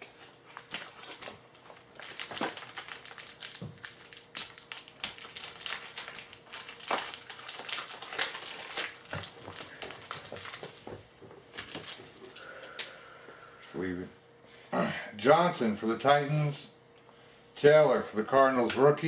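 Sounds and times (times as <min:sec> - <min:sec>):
wrapper crinkling and tearing: 0:00.6 - 0:10.8, 0:11.6 - 0:12.4.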